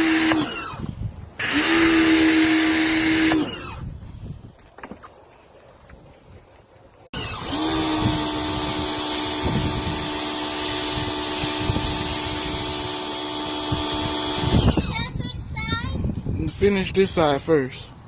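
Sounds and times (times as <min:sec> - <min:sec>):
pressure washer motor whine: 0:00.0 - 0:00.8, 0:07.2 - 0:14.9.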